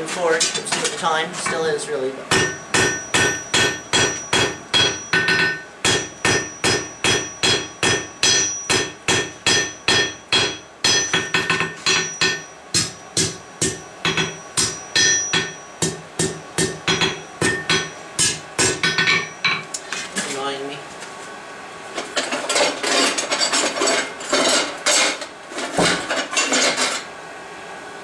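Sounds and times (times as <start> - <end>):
hammer striking steel on anvil: 2.3 - 19.7.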